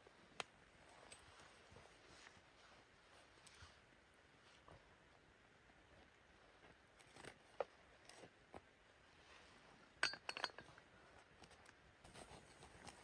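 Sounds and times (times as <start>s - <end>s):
small clicks and clinks: 10.0s - 10.8s.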